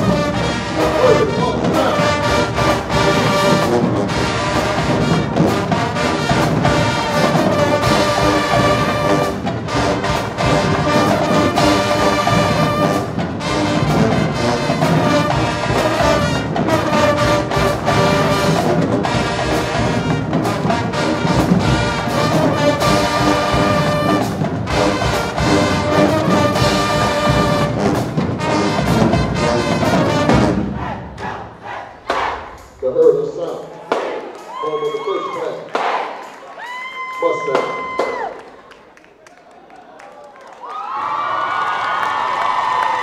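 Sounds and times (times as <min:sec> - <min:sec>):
brass section holding chords: 0:00.0 - 0:31.8
steady drum beats: 0:00.0 - 0:38.5.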